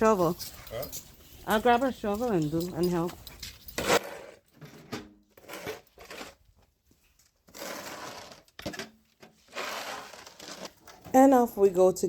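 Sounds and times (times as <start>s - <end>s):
snow shovel scraping pavement: 3.8s - 4.4s, 7.5s - 10.8s.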